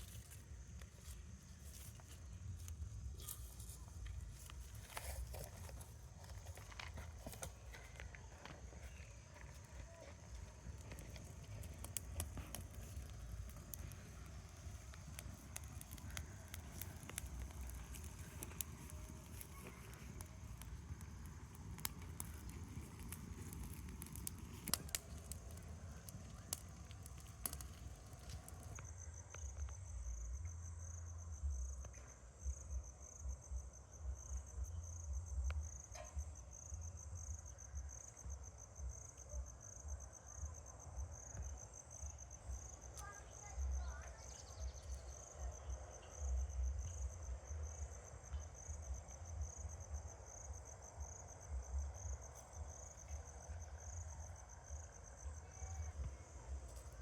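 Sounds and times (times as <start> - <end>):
scattered clicks and crackles: 0.0 - 29.8
insects chirring: 0.0 - 57.0
wind buffeting microphone: 10.2 - 28.8.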